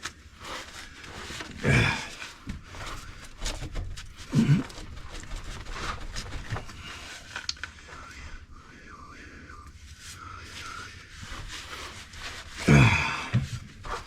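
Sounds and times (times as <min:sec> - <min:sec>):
man grunting and breathing hard: 0:01.4 - 0:03.4, 0:04.2 - 0:04.9, 0:12.5 - 0:14.0.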